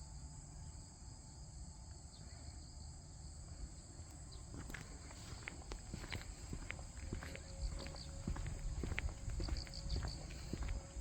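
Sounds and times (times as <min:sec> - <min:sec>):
crickets and insects chirring: 0:00.0 - 0:11.0
footsteps: 0:04.5 - 0:11.0.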